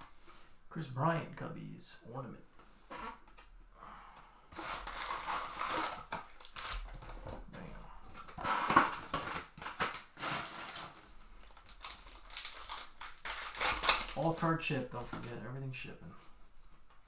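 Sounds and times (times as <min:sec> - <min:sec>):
wrappers crinkling and rustling: 0:04.6 - 0:15.4.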